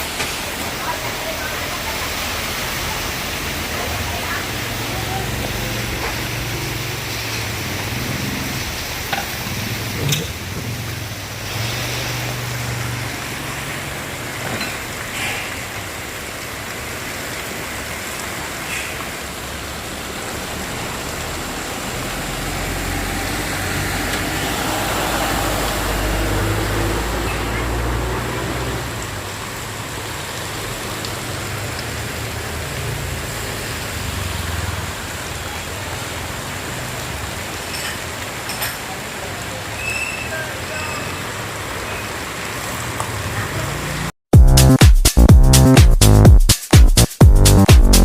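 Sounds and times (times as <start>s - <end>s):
heavy rain: 0.0s - 46.3s
motor vehicle passing: 1.0s - 14.4s, 20.0s - 35.2s.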